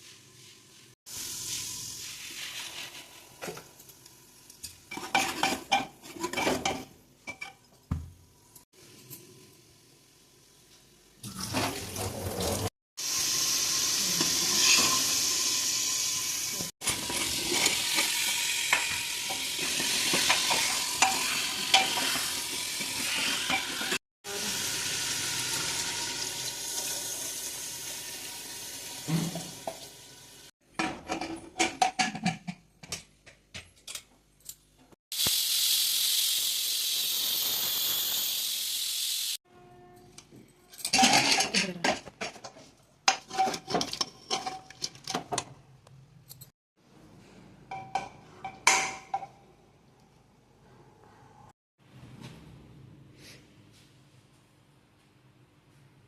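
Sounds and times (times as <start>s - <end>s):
food sizzling in hot oil: 0.0s - 5.4s, 13.0s - 30.5s, 35.1s - 39.4s
utensils clinking and scraping: 16.8s - 24.0s, 40.0s - 45.4s.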